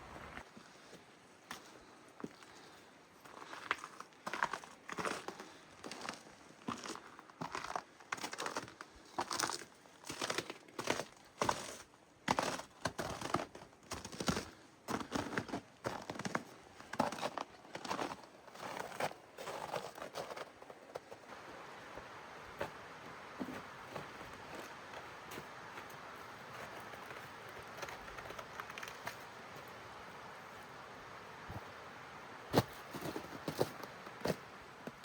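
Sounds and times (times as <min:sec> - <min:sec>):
footsteps crunching through snow: 0:03.4 - 0:35.0
steady rushing hiss: 0:21.2 - 0:35.0.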